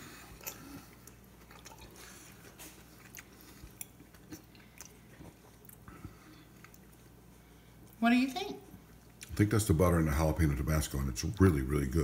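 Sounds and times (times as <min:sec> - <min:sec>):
person chewing: 0:00.0 - 0:08.0
low steady hum: 0:00.0 - 0:12.0.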